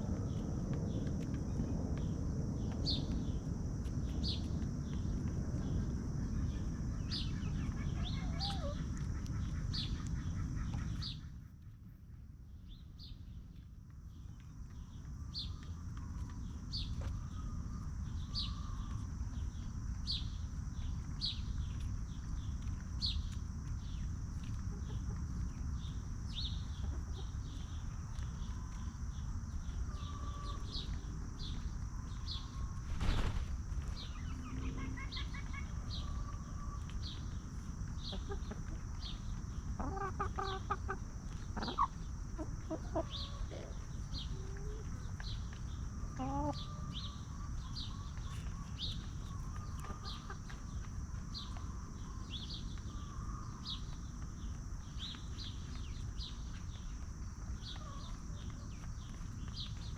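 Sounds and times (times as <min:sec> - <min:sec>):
low rumble: 0:00.0 - 0:07.8
faint chicken cluck: 0:04.0 - 0:33.2, 0:34.0 - 0:59.9.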